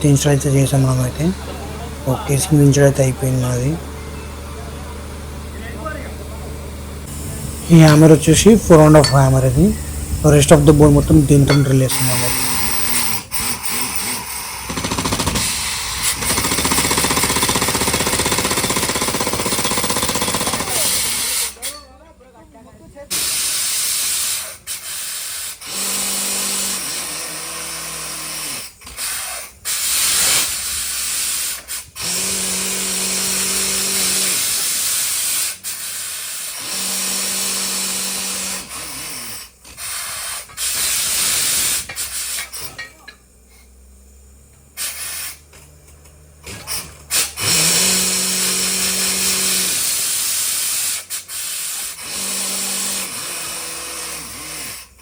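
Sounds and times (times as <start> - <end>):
low humming tone: 7.0 - 12.3
compressed air hissing: 7.0 - 14.7, 23.1 - 42.7, 44.8 - 45.5, 47.1 - 55.0.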